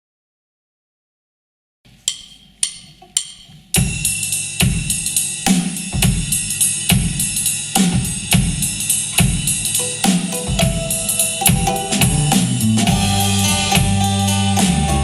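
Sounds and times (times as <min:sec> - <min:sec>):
drum kit beat: 0:02.1 - 0:15.0
live band playing: 0:09.6 - 0:15.0.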